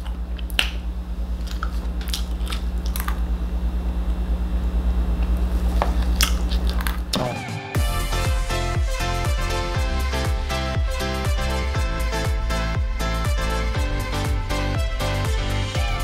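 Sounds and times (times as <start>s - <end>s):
person chewing crunchy food: 0.0s - 3.4s, 5.3s - 7.2s
steady low hum: 0.0s - 16.0s.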